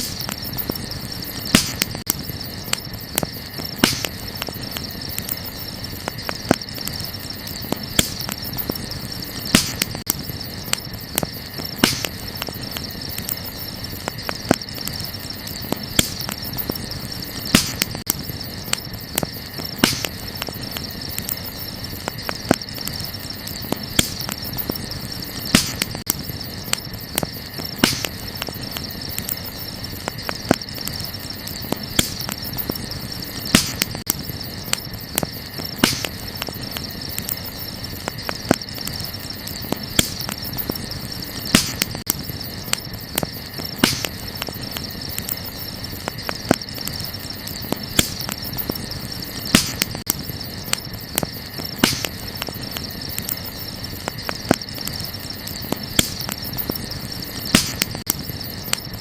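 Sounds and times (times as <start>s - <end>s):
campfire crackling and popping: 0.0s - 59.0s
crickets chirring: 0.0s - 59.0s.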